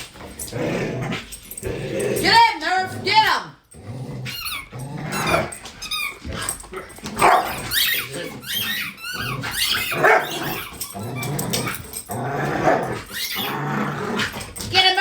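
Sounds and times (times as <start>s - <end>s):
dog growling: 0.0s - 14.7s
dog barking and yipping: 7.2s - 13.6s.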